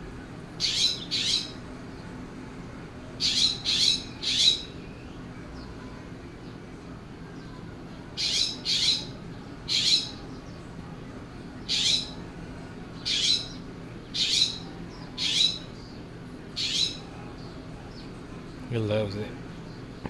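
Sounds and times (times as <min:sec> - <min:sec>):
jay squawking: 0:00.6 - 0:01.6, 0:03.2 - 0:04.8, 0:08.2 - 0:09.1, 0:13.1 - 0:13.6, 0:14.2 - 0:15.7, 0:16.6 - 0:17.1.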